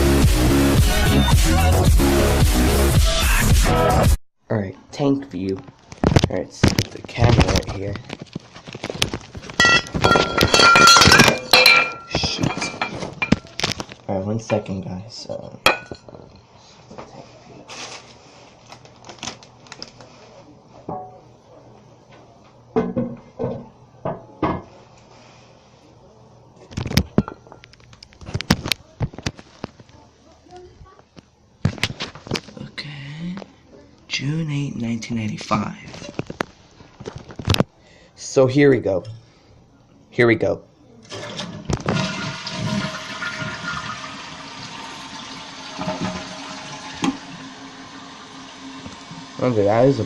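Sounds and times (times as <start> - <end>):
toilet tank refilling: 41.0 - 50.0.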